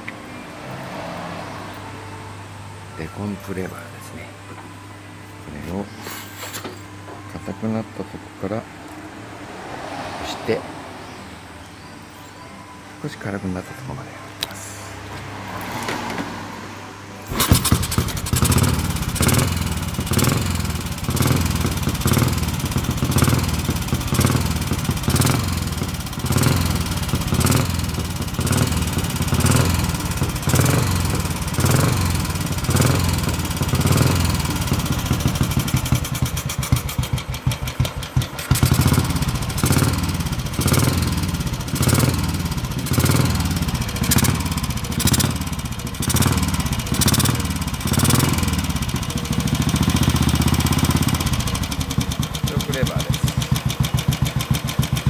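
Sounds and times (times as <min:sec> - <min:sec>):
motorcycle engine idling: 0:17.3 - 0:55.0
motorcycle engine kick-starting: 0:17.3 - 0:55.0.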